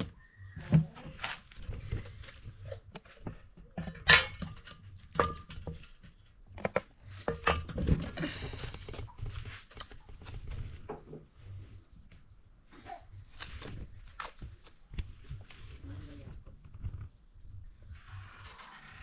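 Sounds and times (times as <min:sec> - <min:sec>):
dishes and utensils clinking: 0:03.8 - 0:06.1, 0:07.2 - 0:08.3.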